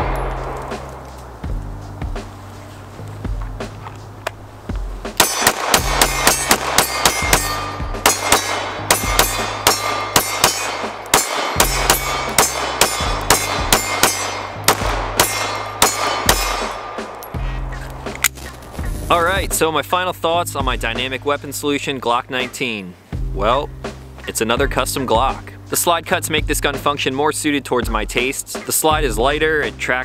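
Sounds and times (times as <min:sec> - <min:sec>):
pistol rapid fire: 0:00.0 - 0:01.0, 0:05.2 - 0:17.2
background music with bass: 0:00.0 - 0:30.0
bullets ringing on steel targets: 0:05.2 - 0:17.3.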